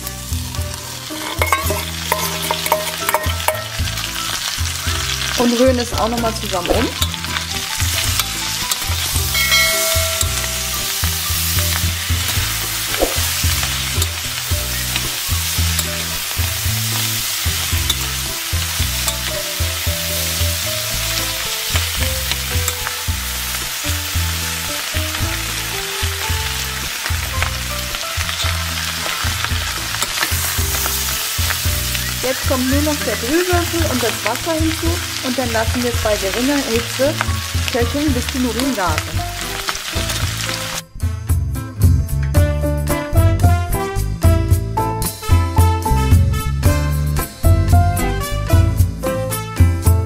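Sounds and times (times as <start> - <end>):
food sizzling in a pot: 0.0 - 41.2
spoon scraping and stirring: 1.1 - 3.6.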